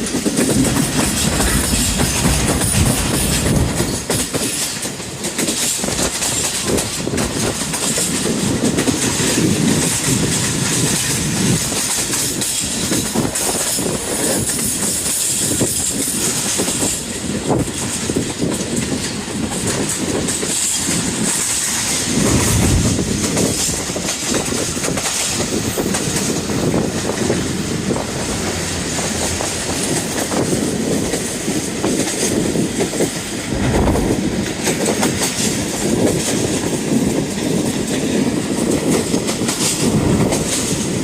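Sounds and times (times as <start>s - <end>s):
train wheels clacking on rails: 0.0s - 41.0s.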